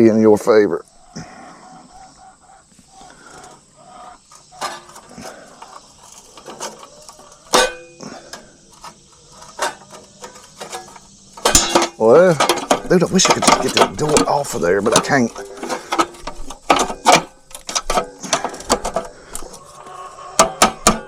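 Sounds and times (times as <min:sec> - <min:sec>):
sharp metallic clank: 0:07.5 - 0:08.1, 0:10.7 - 0:15.2
taps and clinks on metal: 0:10.6 - 0:19.0.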